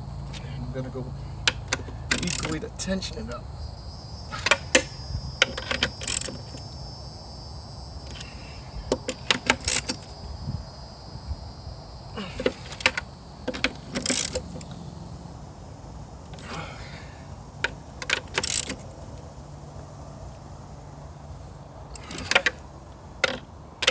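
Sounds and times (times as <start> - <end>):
wrench clicking on nuts: 1.4 - 2.6.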